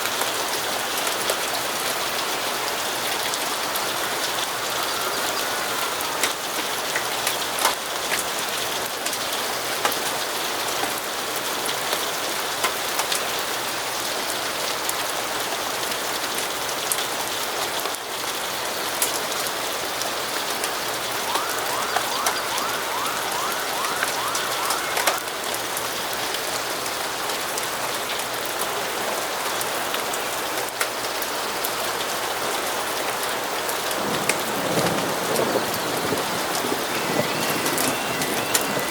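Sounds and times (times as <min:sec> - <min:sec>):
steady rainfall: 0:00.0 - 0:38.9
short rising chirps: 0:21.3 - 0:25.5.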